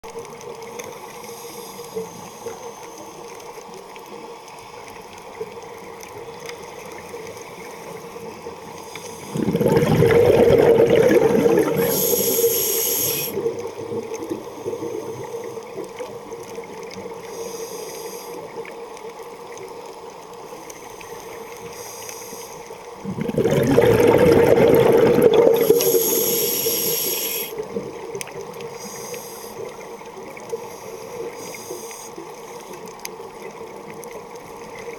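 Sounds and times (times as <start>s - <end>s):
steady underwater hiss: 0.1s - 34.9s
rushing bubbling water surges: 5.4s - 17.4s, 21.2s - 34.9s.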